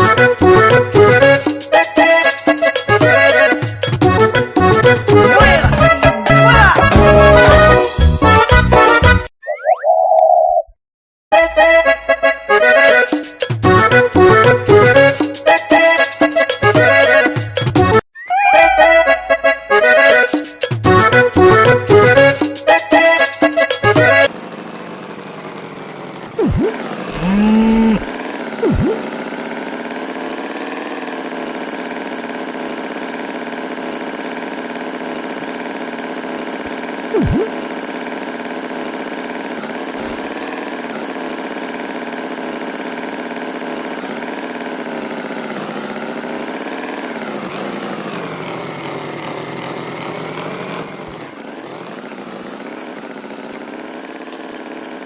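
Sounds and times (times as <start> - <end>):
motor engine running: 0.0 - 9.2, 11.6 - 18.0, 18.6 - 55.0.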